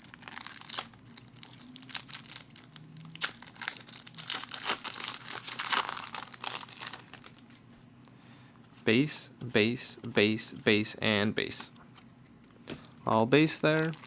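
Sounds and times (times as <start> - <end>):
foil wrapper tearing and crinkling: 0.0 - 7.5, 13.4 - 14.0.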